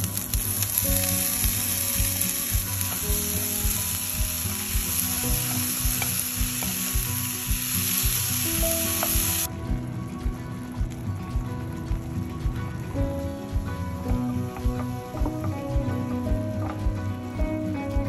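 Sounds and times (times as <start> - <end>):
onion and potato sizzling in oil: 0.0 - 9.5, 11.6 - 17.9.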